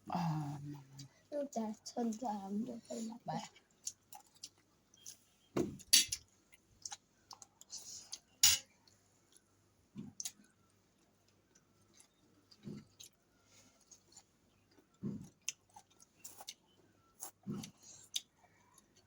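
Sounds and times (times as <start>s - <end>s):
chewing fried rice: 3.4s - 5.5s, 6.2s - 19.0s.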